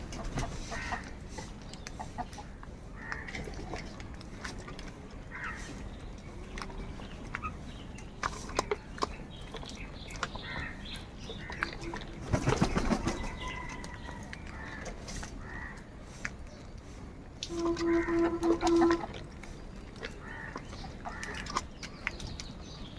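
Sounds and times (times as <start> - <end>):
birds calling and clicking: 0.0 - 22.9
wings flapping: 12.2 - 13.4.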